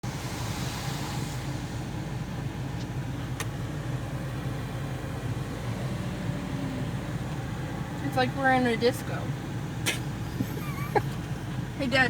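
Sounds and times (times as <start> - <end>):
hiss: 0.0 - 2.4
car idling hum: 0.0 - 12.0.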